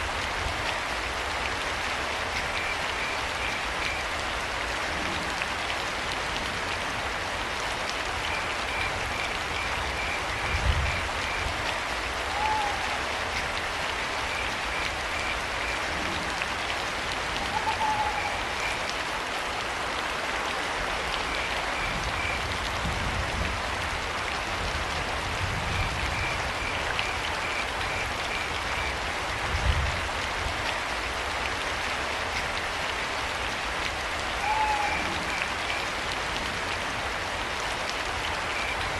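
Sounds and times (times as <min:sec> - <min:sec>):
rain falling: 0:00.0 - 0:38.9
owl calls: 0:12.3 - 0:13.0, 0:17.4 - 0:18.5, 0:34.4 - 0:35.1.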